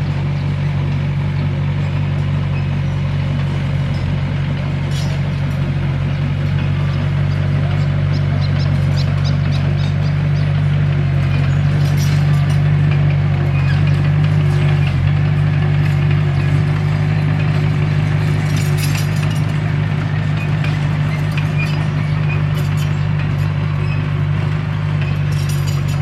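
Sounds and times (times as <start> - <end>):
bulldozer diesel engine running: 0.0 - 26.0
faint clanks: 11.3 - 15.2, 18.4 - 19.6, 24.9 - 26.0.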